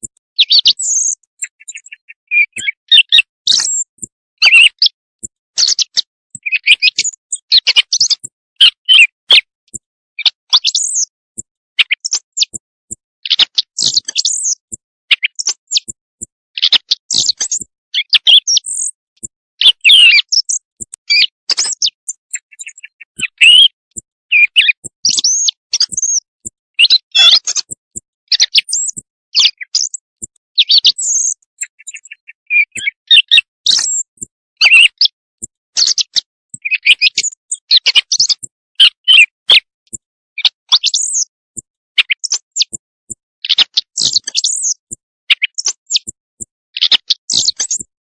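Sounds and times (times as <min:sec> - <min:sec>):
recorded quail calls: 0:19.6 - 0:23.7, 0:24.3 - 0:26.2.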